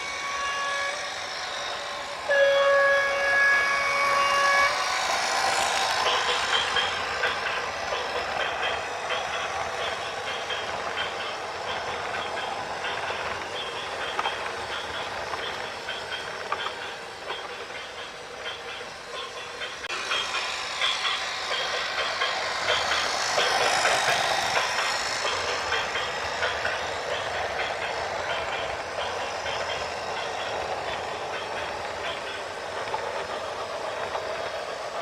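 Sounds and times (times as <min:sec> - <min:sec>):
loud horn blast: 0:02.3 - 0:04.7.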